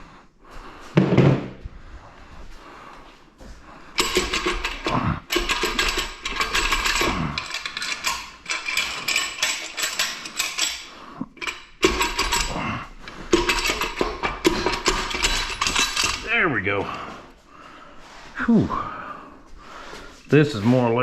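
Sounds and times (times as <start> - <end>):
metal parts clanking and scraping: 3.9 - 16.6.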